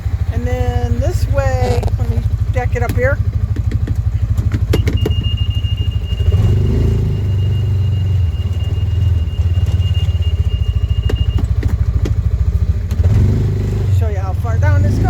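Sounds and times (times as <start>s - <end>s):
utility vehicle engine running: 0.0s - 15.0s
reverse warning buzzer: 4.2s - 13.4s.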